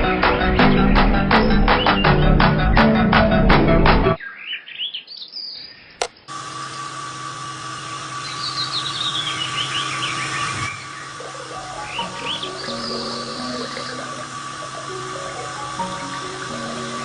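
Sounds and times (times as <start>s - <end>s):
small birds chirping: 4.2s - 6.3s, 8.1s - 17.0s
guitar music: 11.2s - 17.0s.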